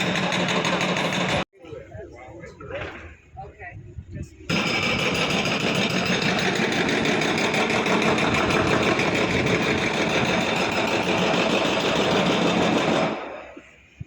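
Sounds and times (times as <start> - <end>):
engine running: 4.5 - 13.2.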